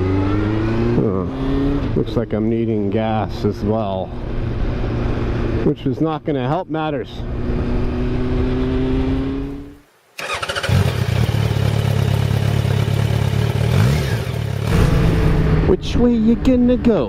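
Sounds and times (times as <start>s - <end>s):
motorcycle engine running: 10.2s - 15.7s.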